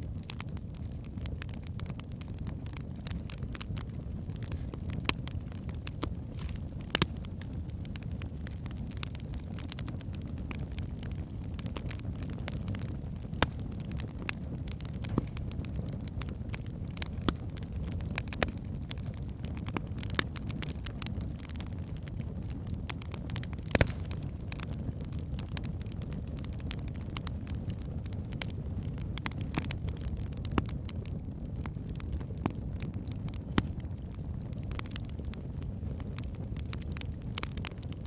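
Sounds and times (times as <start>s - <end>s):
low rumble of flames: 0.0s - 38.0s
wood fire crackling: 0.0s - 38.0s
logs popping: 2.7s - 27.3s, 33.4s - 33.9s.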